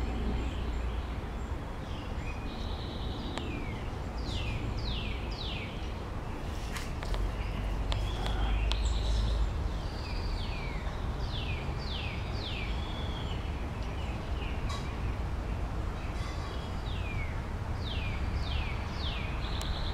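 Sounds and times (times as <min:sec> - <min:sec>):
low microphone rumble: 0:00.0 - 0:01.5.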